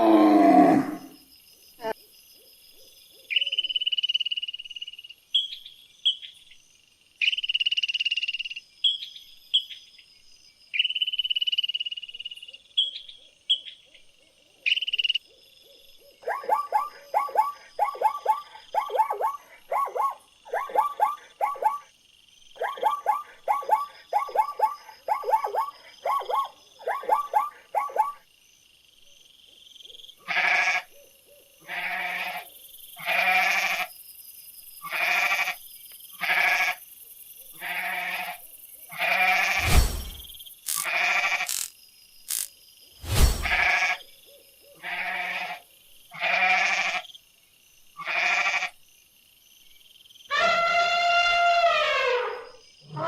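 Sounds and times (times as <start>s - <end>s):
high clear animal calls: 0.0s - 1.2s, 50.3s - 53.0s
short chirps: 39.5s - 41.7s, 42.3s - 43.6s.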